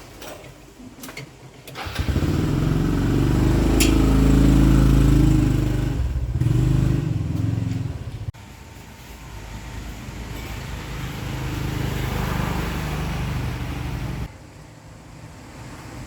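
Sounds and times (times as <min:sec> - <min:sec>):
vehicle engine running loudly: 0:02.0 - 0:08.2.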